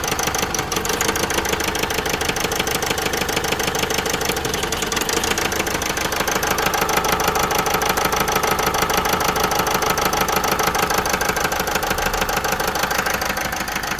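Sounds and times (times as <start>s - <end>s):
diesel engine idling with misfire: 0.0s - 13.9s.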